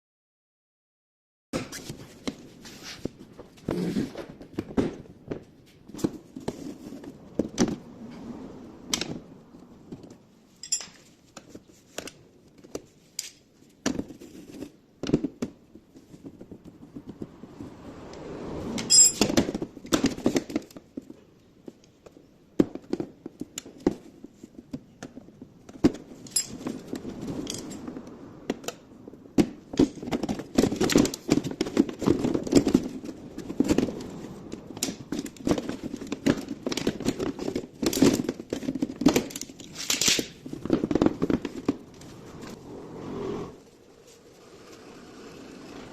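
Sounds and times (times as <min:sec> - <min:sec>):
hand tools clicking and rattling: 0:10.6 - 0:11.2, 0:26.2 - 0:27.9, 0:29.8 - 0:42.2.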